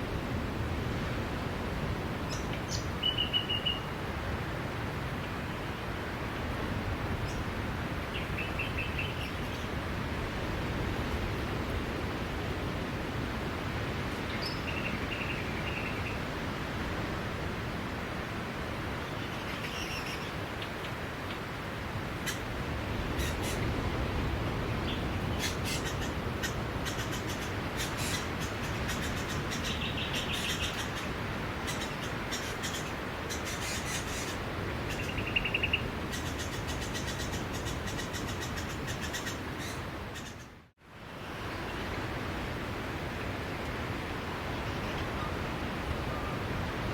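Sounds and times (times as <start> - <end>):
sea surf on beach: 0.0 - 40.1, 40.8 - 46.9
bird chirping: 24.8 - 40.5.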